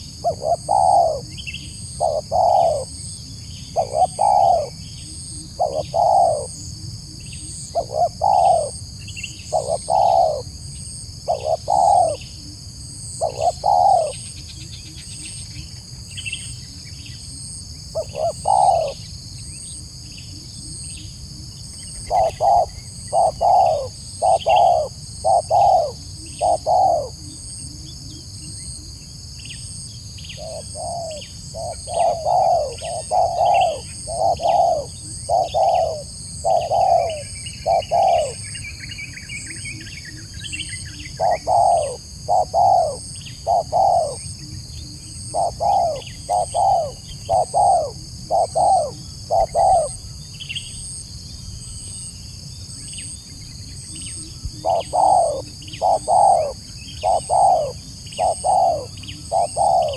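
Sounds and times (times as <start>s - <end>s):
small birds chirping: 0.0s - 6.6s, 11.3s - 12.5s, 18.0s - 19.6s, 21.6s - 27.4s, 30.2s - 50.9s, 52.8s - 59.9s
dove cooing: 0.0s - 10.6s, 11.2s - 15.4s, 17.9s - 19.0s, 20.1s - 28.9s, 30.4s - 50.1s, 53.9s - 59.9s
high insect buzz: 52.2s - 59.9s.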